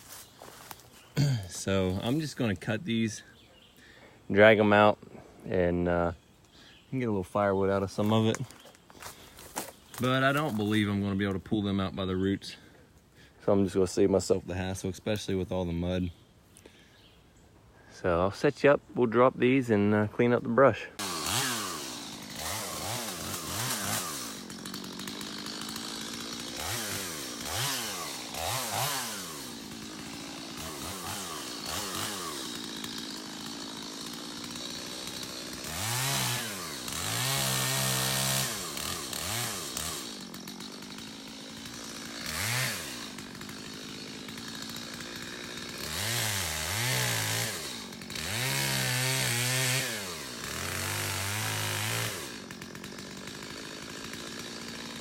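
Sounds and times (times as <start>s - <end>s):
chainsaw revving: 0.1s - 3.3s, 7.3s - 12.7s, 20.8s - 55.0s.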